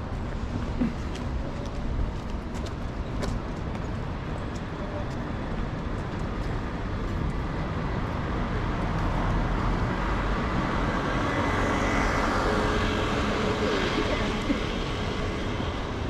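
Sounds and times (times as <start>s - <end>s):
city road traffic: 0.0s - 16.0s
vehicle approaching: 5.2s - 16.0s.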